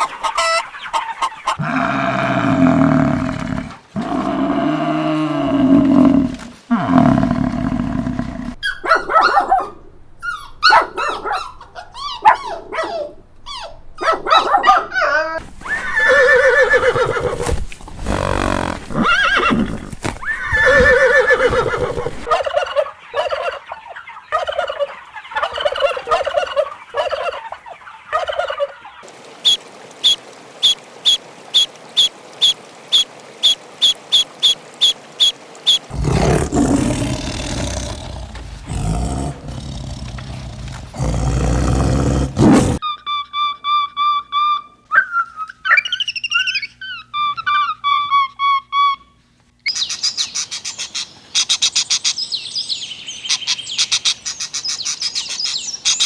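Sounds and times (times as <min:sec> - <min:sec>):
farm animal calls: 0:00.0 - 0:08.9, 0:15.0 - 0:29.0, 0:32.9 - 0:49.8.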